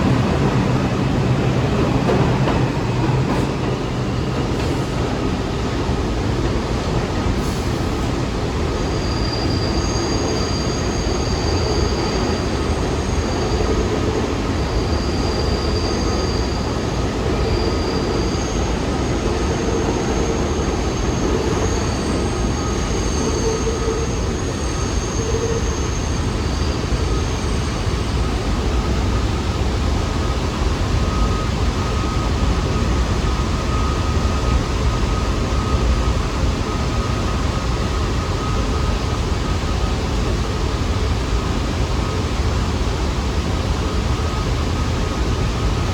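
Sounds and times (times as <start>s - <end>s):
subway train rumbling: 0.0s - 45.9s
high-pitched wheel squeals: 8.8s - 27.7s.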